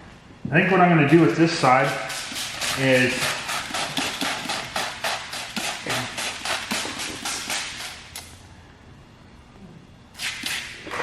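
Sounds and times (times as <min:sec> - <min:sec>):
spray bottle squirting: 0:01.7 - 0:08.2, 0:10.2 - 0:10.8.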